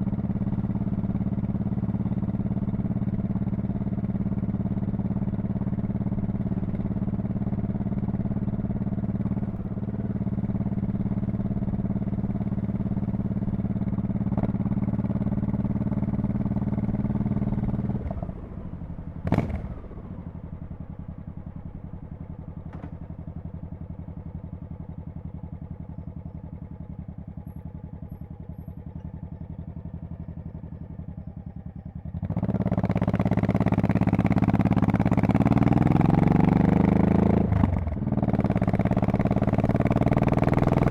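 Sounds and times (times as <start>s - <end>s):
motorcycle engine: 0.0s - 40.9s.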